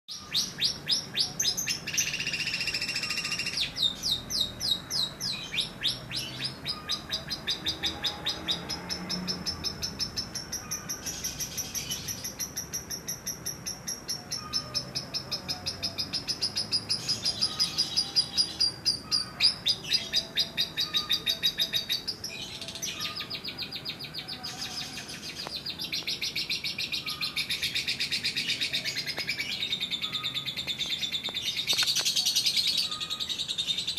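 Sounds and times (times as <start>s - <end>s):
lovebird chattering trill: 0.1s - 33.9s.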